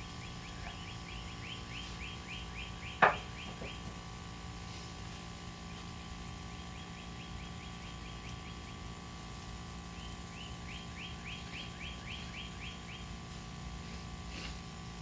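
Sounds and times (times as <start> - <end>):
bird chirping: 0.0 - 4.0, 5.6 - 9.0, 9.9 - 13.2
steady mechanical hum: 0.0 - 15.0.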